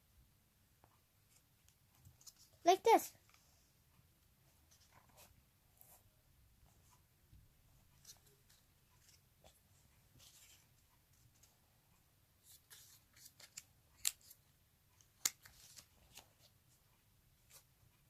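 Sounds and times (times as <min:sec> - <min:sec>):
paper rustling: 0:12.4 - 0:14.4, 0:15.0 - 0:16.5.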